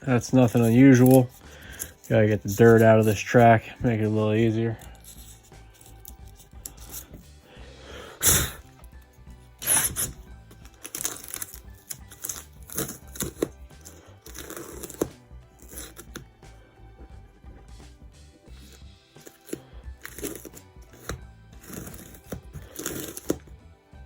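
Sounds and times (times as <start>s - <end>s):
quiet background music: 0.0s - 24.0s.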